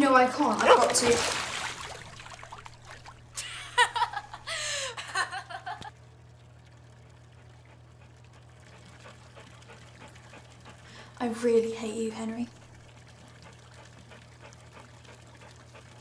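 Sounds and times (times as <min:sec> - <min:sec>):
woman laughing: 0:03.4 - 0:05.9.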